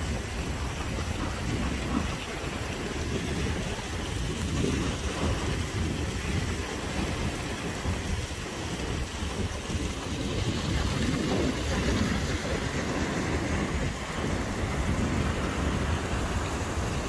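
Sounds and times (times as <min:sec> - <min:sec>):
rain: 0:00.0 - 0:17.0
stream tumbling over rocks: 0:00.0 - 0:17.0.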